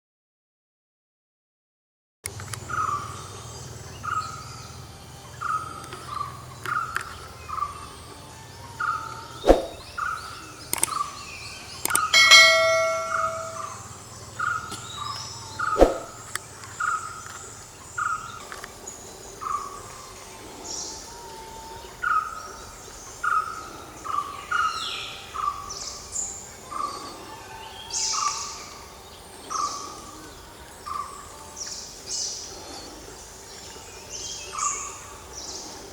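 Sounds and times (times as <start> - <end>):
high chirps: 12.0 - 14.0
bell-like ringing tone: 12.1 - 13.9.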